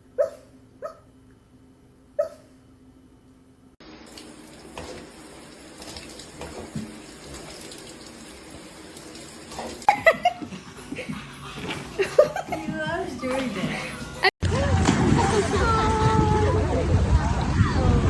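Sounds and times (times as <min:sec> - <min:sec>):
water running from a tap: 0:03.9 - 0:10.0.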